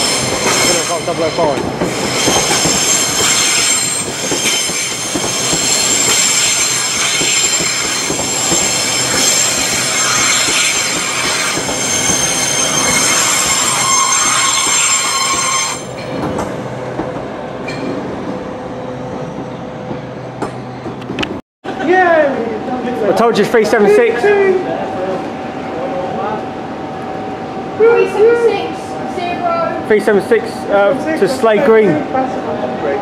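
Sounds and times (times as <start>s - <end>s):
high whining tones: 0.0s - 16.0s
train wheels rumbling on rails: 0.0s - 21.4s.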